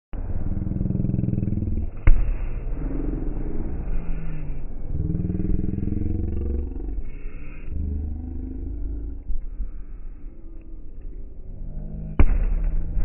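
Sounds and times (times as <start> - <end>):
sharp bang: 0.2 - 4.6, 12.1 - 13.0
slowed fireworks rumbling: 0.2 - 13.0.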